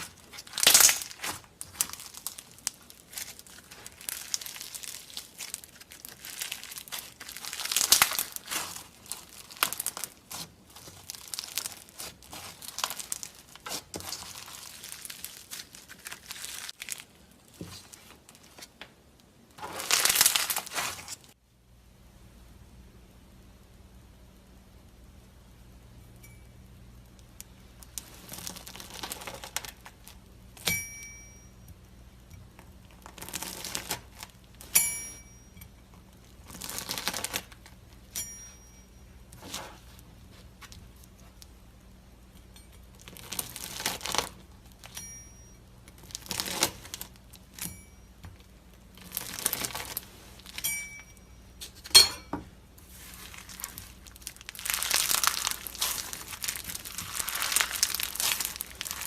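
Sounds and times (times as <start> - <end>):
slime squishing by hand: 0.0 - 21.4, 27.2 - 30.7, 45.9 - 50.6, 52.7 - 59.0.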